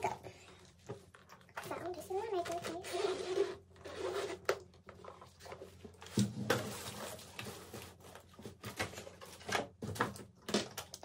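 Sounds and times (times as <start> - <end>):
plastic containers clicking and knocking: 8.5 - 11.0.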